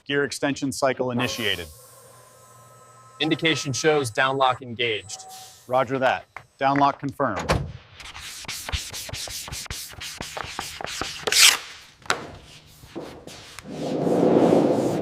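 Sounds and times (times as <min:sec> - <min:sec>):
rubbing strokes on hard surface: 0:12.5 - 0:15.0.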